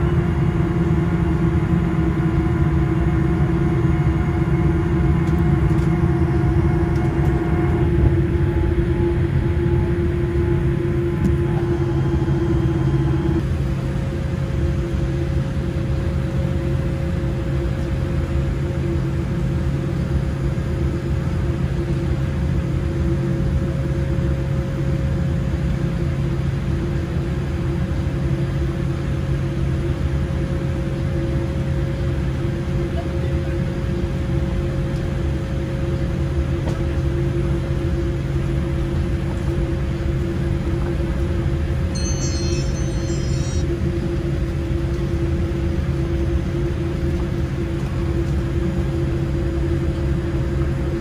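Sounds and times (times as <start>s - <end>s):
airliner cabin engine rumble: 0.0s - 51.0s.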